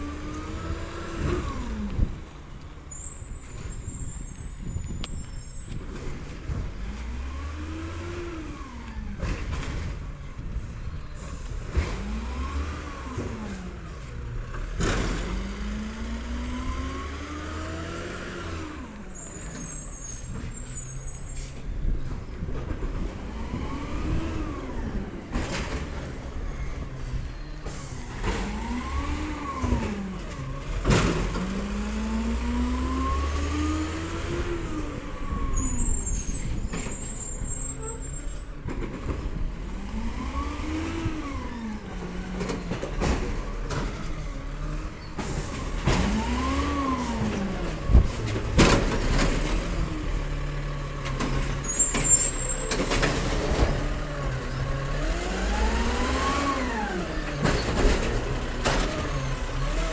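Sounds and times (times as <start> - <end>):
garbage truck engine revving: 0.0 - 4.0, 5.9 - 59.9
short high-pitched squeals: 35.5 - 38.6.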